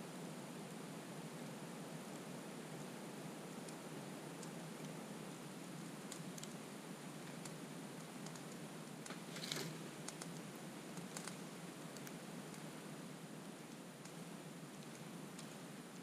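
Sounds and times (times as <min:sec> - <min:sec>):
low steady hiss: 0:00.0 - 0:16.0
campfire crackling and popping: 0:03.5 - 0:12.7, 0:13.5 - 0:16.0.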